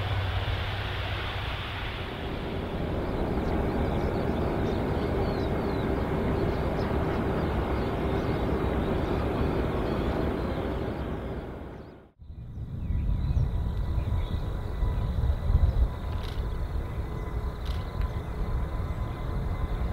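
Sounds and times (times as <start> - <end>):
jet engines rushing and humming: 0.0 - 19.9.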